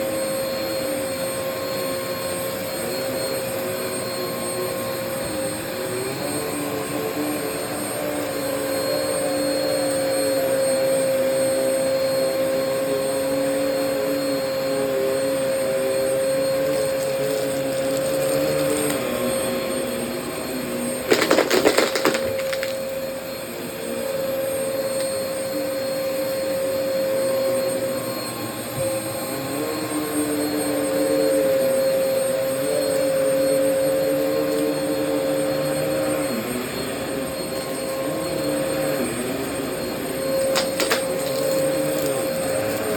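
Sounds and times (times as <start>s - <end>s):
vacuum cleaner on carpet: 0.0s - 42.9s
loud rattle: 21.1s - 22.8s.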